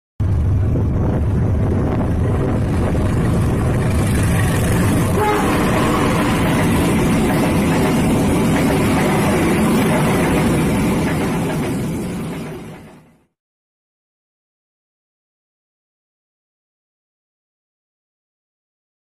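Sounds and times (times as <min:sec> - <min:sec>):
diesel locomotive rumble: 0:00.2 - 0:13.0
train wheels rushing on rails: 0:00.2 - 0:13.3.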